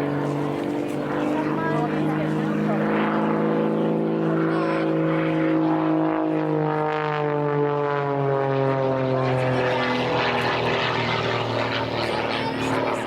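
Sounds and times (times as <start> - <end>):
propeller aircraft flying past: 0.0 - 13.0.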